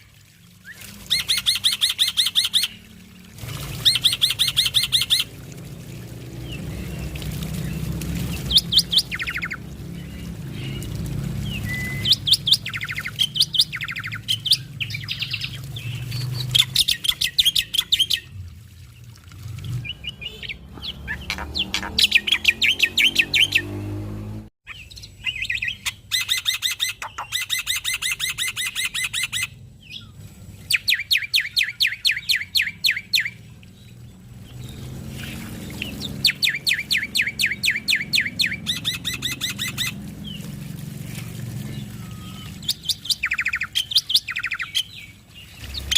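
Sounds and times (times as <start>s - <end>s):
starling chattering song: 6.5s - 18.2s, 19.9s - 23.7s.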